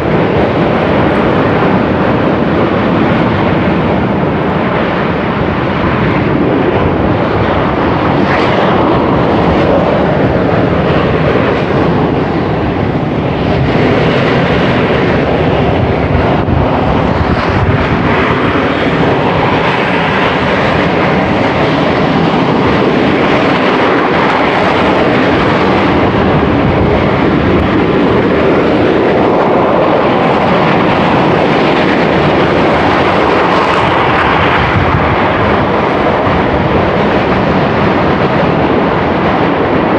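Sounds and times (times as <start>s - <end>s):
volcano venting ash: 0.0s - 39.9s.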